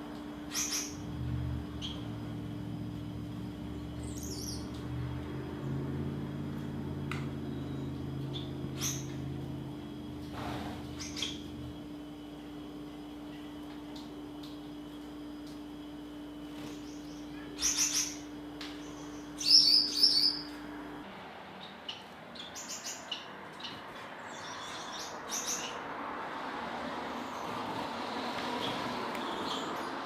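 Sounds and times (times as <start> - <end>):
bird chirping high-pitched: 0.5 - 1.0, 1.8 - 2.1, 4.0 - 4.8, 7.5 - 9.2, 11.0 - 11.6, 16.7 - 20.5.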